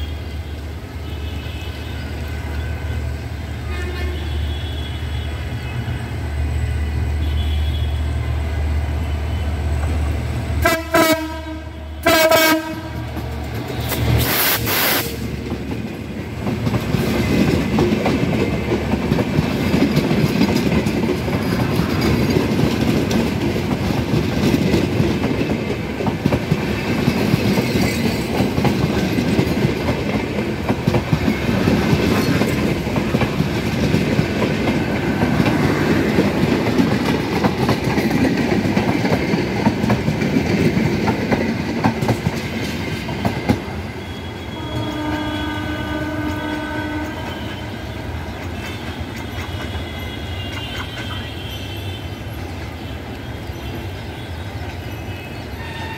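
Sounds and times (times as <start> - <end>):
train coaches rumbling past: 0.0 - 55.9
wheels clacking over rail joints: 12.5 - 55.9.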